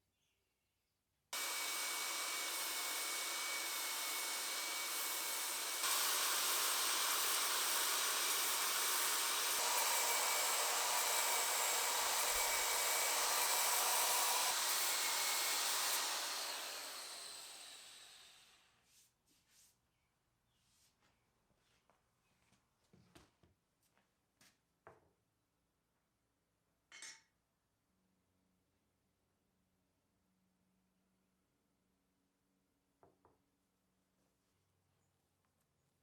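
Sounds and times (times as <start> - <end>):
air blower rushing: 1.4 - 18.5.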